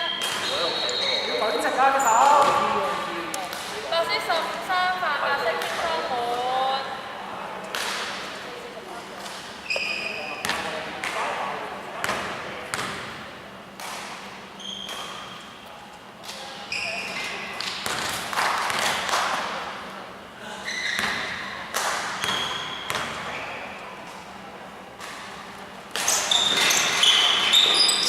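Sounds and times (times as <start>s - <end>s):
sneakers squeaking: 0.0s - 3.1s, 9.4s - 10.8s, 14.4s - 19.1s, 20.5s - 24.3s, 25.0s - 28.0s
players calling out: 0.0s - 4.2s
basketball bouncing: 22.2s - 23.2s.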